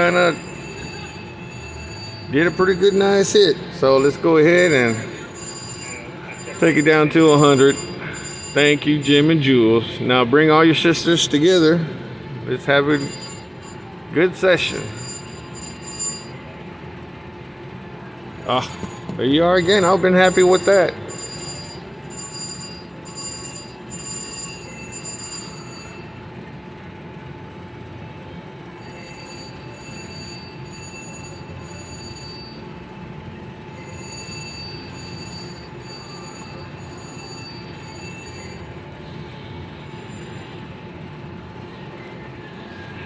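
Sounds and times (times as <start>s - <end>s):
slot machine chiming tones: 0.0s - 10.0s, 12.6s - 16.6s, 18.5s - 26.2s, 28.8s - 32.8s, 33.7s - 38.8s
casino floor hum: 0.0s - 16.6s, 18.4s - 26.1s.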